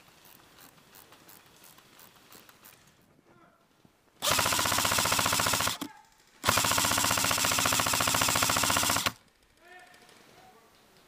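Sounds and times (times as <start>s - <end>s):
airsoft gun firing full auto: 4.2s - 9.7s.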